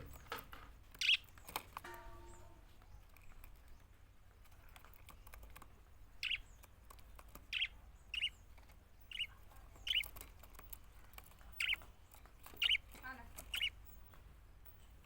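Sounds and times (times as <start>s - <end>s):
budgerigars chirping: 1.0s - 1.4s, 6.2s - 10.2s, 11.4s - 14.1s.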